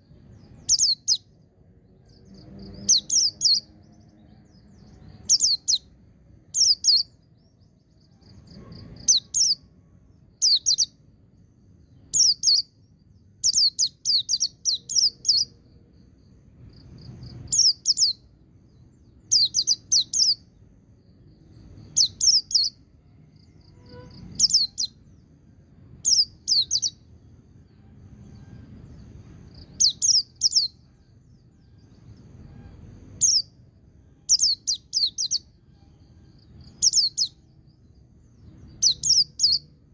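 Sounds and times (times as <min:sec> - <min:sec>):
bird singing sharp high notes: 0:23.5 - 0:25.1.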